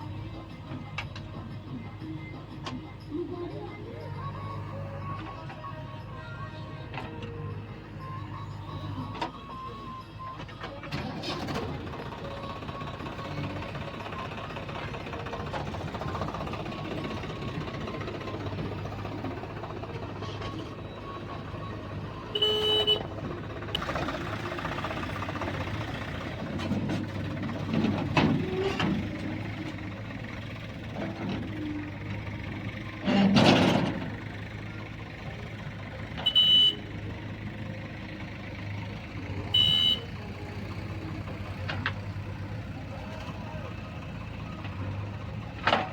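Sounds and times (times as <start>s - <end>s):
heavy diesel engines running: 0.0s - 45.9s
vehicle horn toots: 22.3s - 23.2s, 36.2s - 37.0s, 39.5s - 40.2s.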